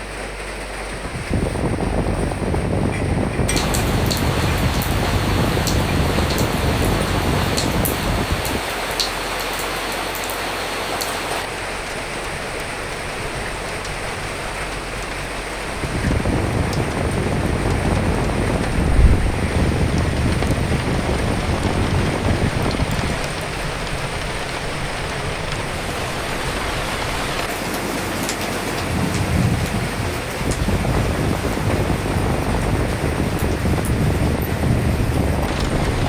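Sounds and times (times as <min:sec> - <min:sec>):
steady rain falling: 0:00.0 - 0:36.0
wind gust: 0:00.9 - 0:36.0.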